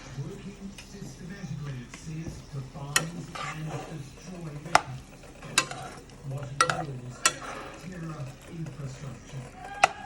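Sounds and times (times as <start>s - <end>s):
food sizzling in a pan: 2.6s - 8.4s
utensil striking pan: 2.8s - 10.0s.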